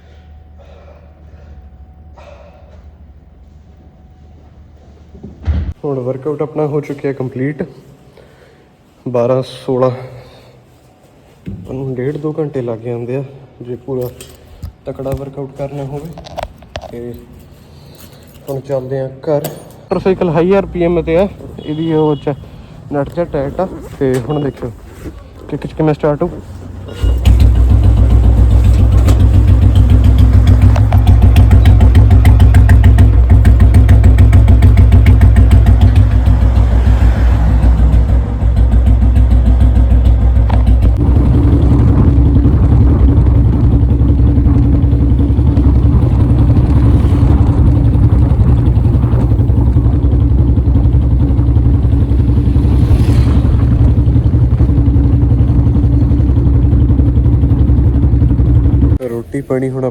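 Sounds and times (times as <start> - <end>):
single-cylinder motorcycle engine idling: 27.1 - 59.0.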